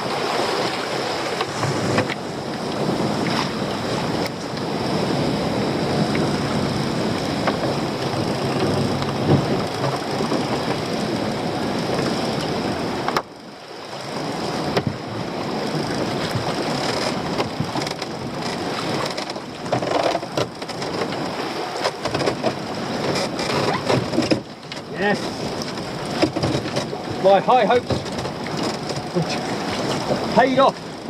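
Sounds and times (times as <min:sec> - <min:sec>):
wind buffeting microphone: 0:00.0 - 0:13.2.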